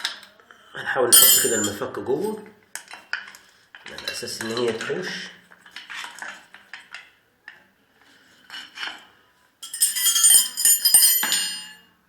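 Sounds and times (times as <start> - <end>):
hand tools clinking on metal: 1.2 - 1.8, 9.6 - 11.8
ringing metal clatter: 1.2 - 1.8, 9.6 - 11.8.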